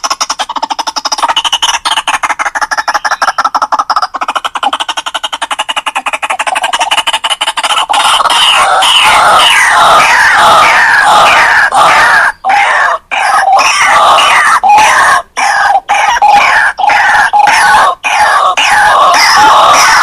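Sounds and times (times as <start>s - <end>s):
waterhen calling: 0.0s - 20.0s.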